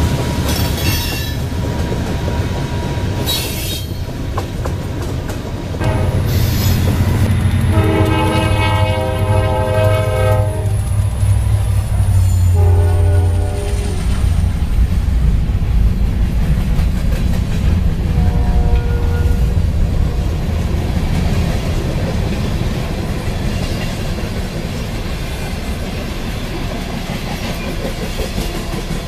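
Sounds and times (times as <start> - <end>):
locomotive and train rumble: 0.0 - 29.0
locomotive air horn: 5.8 - 14.4, 18.1 - 20.3.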